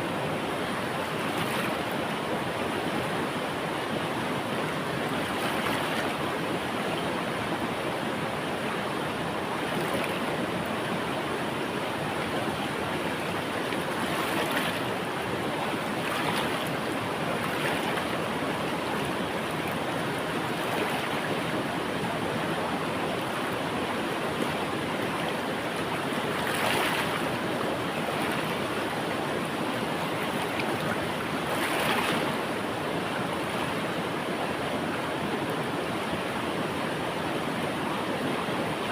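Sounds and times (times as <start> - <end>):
river water rushing: 0.0 - 38.9
water splashing: 26.3 - 27.4, 30.0 - 32.5.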